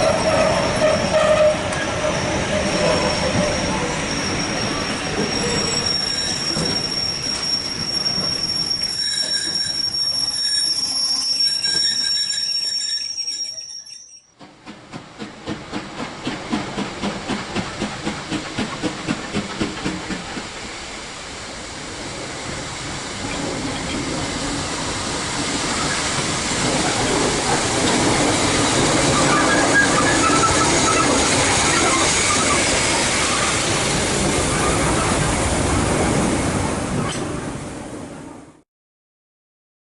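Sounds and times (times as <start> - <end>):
train wheels squealing: 0.0 - 14.4, 28.4 - 33.6
train rolling rumble: 0.0 - 38.6
train rhythmic beats: 14.4 - 20.5.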